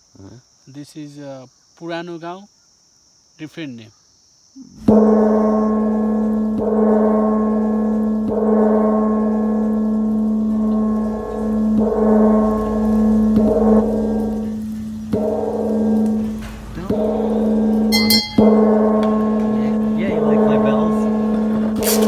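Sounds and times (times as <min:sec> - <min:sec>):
singing bowl ringing: 0:04.9 - 0:22.0.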